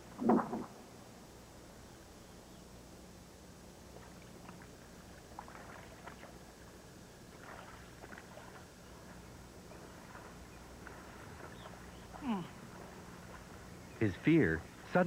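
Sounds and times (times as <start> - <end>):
low hum: 0.0 - 15.0
faint rustling and crackling: 3.8 - 15.0.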